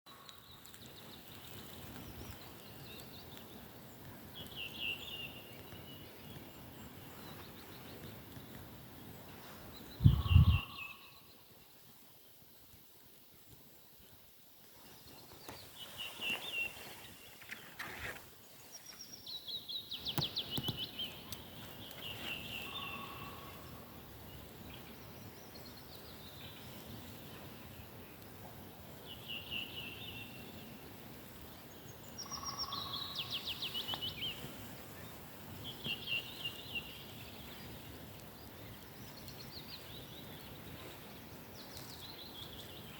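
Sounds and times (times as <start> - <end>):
birds chirping: 0.1 - 11.8, 14.8 - 42.9
outdoor background noise: 0.1 - 42.9.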